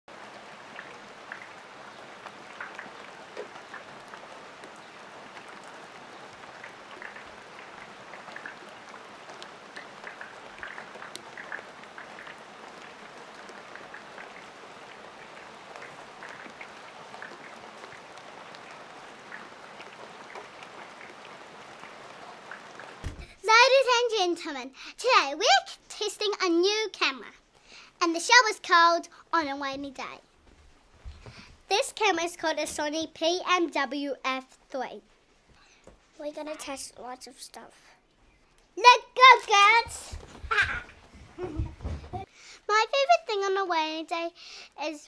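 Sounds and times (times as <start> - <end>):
louder water drips: 0.1 - 23.4
steady rain falling: 0.1 - 45.0.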